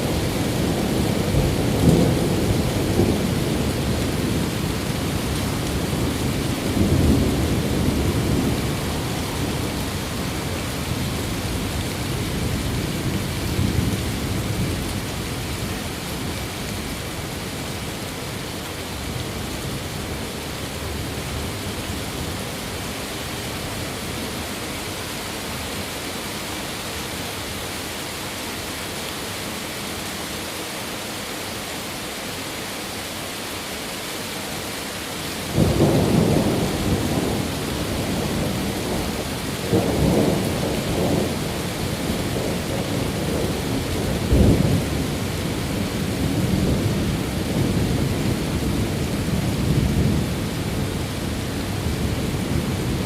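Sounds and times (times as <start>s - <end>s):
steady rain hiss: 0.0s - 53.0s
thunder cracking and rumbling: 35.5s - 45.3s.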